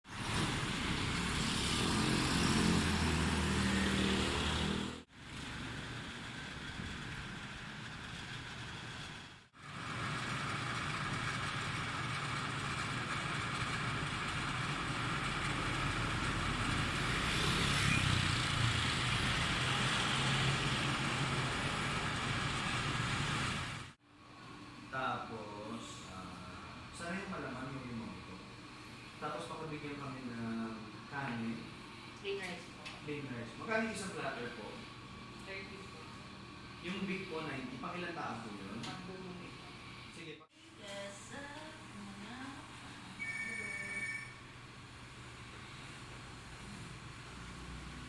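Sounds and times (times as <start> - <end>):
road traffic rumble: 0.1 - 24.0, 44.8 - 48.0.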